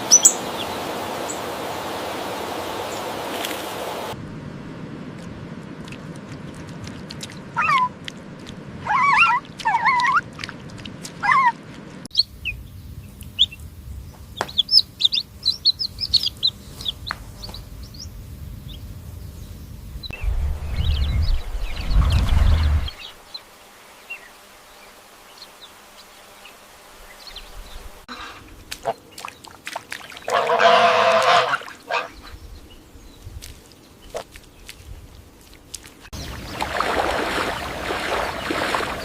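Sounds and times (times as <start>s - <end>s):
high-pitched peeping chirps: 0.1s - 0.7s, 14.4s - 18.1s
low rumble: 17.8s - 23.2s.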